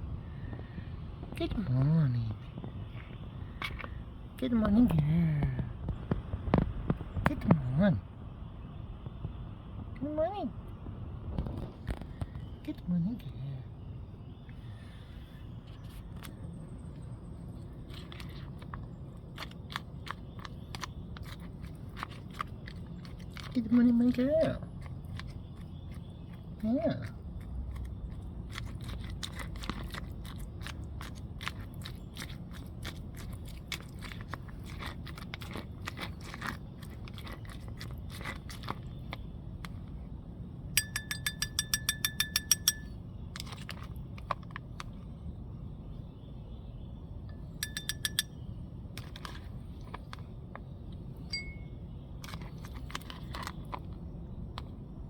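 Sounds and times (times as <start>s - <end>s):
small metal bell jingling: 40.8s - 42.9s, 47.6s - 48.3s, 51.3s - 51.7s.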